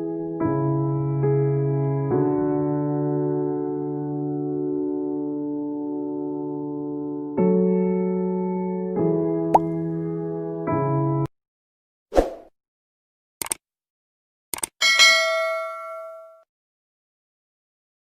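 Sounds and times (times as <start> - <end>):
short clicks: 13.4 - 13.6, 14.5 - 14.8
bright bell-like ding: 14.8 - 16.5.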